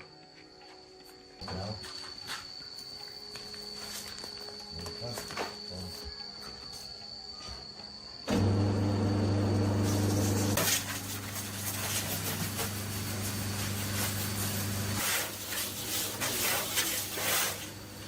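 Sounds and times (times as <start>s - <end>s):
machine humming: 8.3s - 10.6s.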